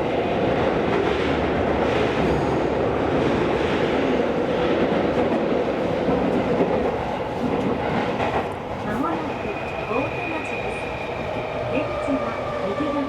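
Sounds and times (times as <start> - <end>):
subway train wheels rumbling: 0.0 - 13.0.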